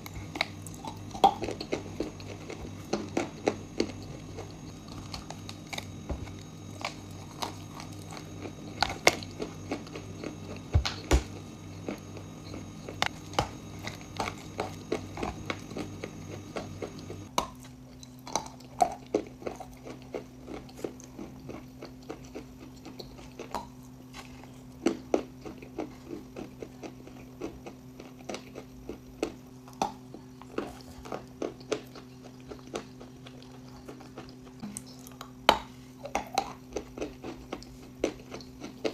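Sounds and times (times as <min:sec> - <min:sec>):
low background hum: 0:00.0 - 0:38.9
person chewing crunchy chalk: 0:00.0 - 0:38.9.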